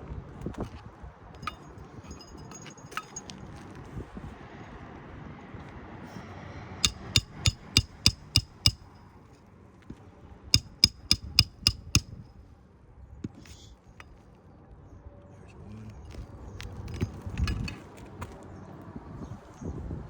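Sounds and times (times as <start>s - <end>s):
hammer striking roofing nails: 6.8s - 8.8s, 10.6s - 12.2s.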